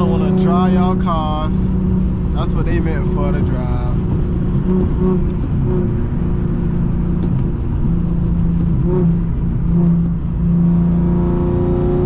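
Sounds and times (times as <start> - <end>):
car engine drone: 0.0 - 12.0
road rumble: 0.0 - 12.0.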